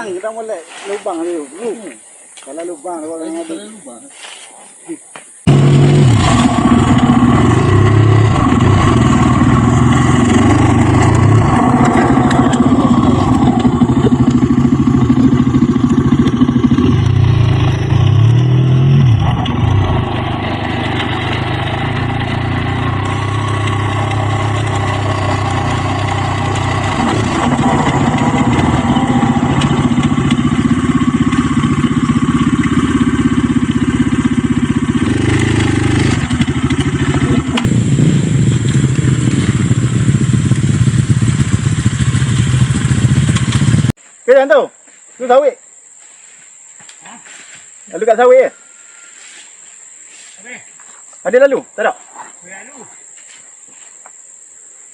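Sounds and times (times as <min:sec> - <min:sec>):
dirt bike engine revving: 0:05.5 - 0:44.0.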